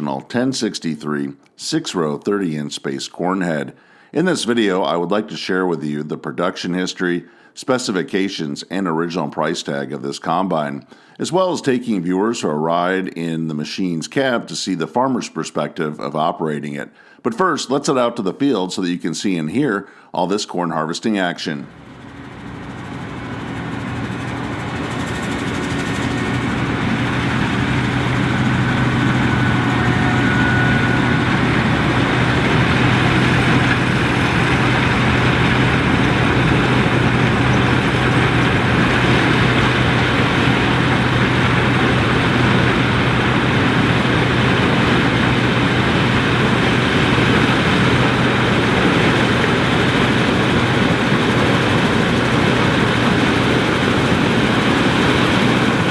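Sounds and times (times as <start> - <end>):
combine harvester engine droning: 21.7 - 55.9.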